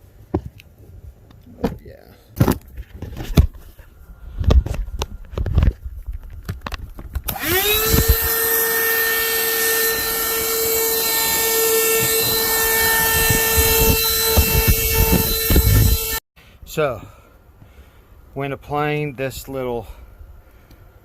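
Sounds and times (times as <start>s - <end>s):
handling knocks and clicks: 4.4s - 8.3s
small electric motor whining: 7.3s - 16.2s.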